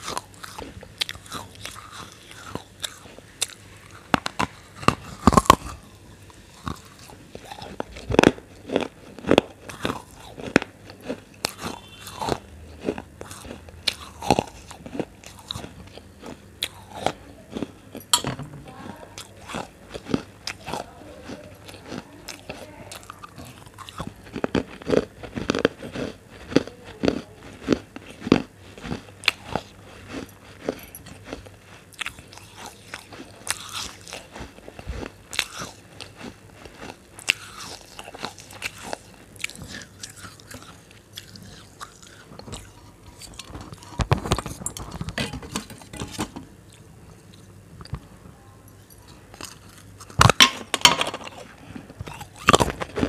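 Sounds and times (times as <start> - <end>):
person chewing crunchy food: 0.0 - 48.0, 49.0 - 53.0.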